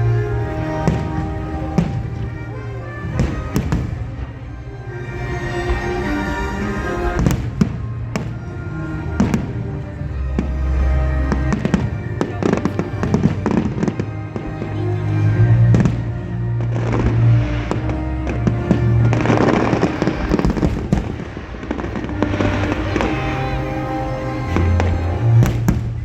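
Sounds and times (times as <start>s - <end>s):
music with held low notes: 0.0s - 26.0s
fireworks bursting and crackling: 3.2s - 4.2s, 19.2s - 23.3s.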